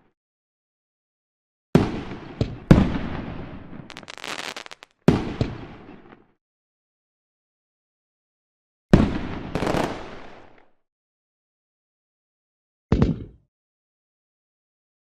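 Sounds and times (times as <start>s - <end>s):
fireworks booming: 1.8s - 5.8s, 9.0s - 10.4s
fireworks crackling: 3.9s - 4.9s, 9.6s - 10.2s
fireworks popping: 3.9s - 5.5s, 9.6s - 10.2s.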